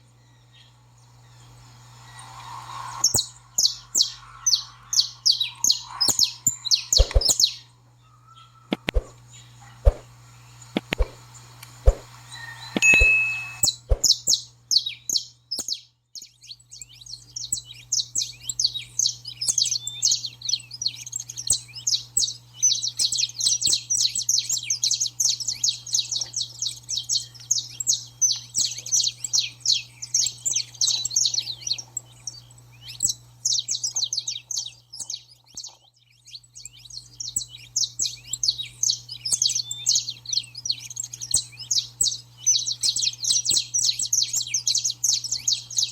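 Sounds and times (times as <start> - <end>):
steady low hum: 0.0 - 14.7
finch singing high chirps: 0.2 - 11.2, 11.8 - 45.9.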